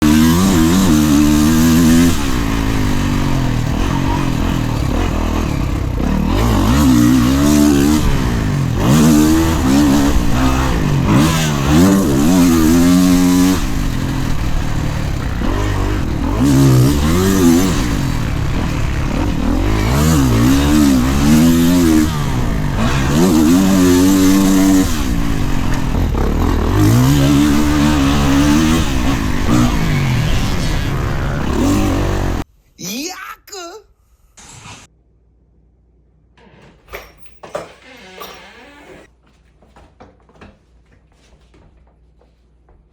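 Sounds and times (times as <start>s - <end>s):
dirt bike engine revving: 0.0s - 32.5s.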